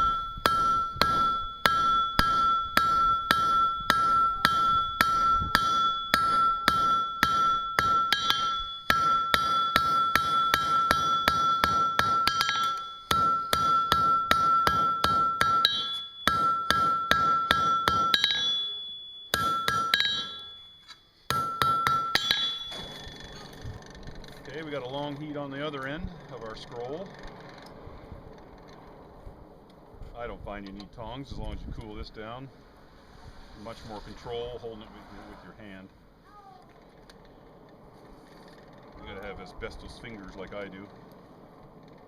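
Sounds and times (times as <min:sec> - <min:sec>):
hammer striking steel on anvil: 0:00.0 - 0:23.4
anvil ringing: 0:00.0 - 0:23.6.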